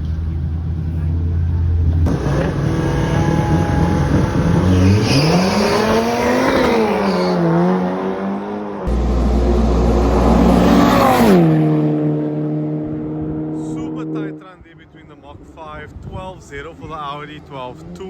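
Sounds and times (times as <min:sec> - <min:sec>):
drag racing car engines revving: 0:00.0 - 0:14.4.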